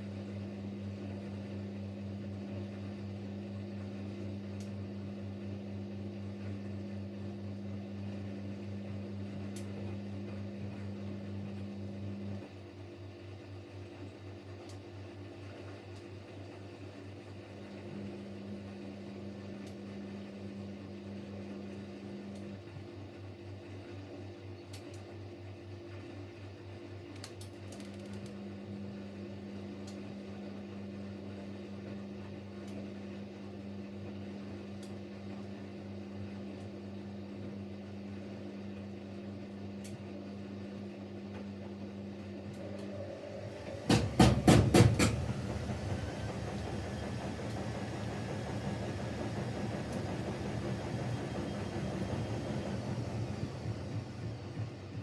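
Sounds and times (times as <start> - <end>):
washing machine hum: 0.0 - 55.0
washing machine drum knocking: 42.9 - 55.0.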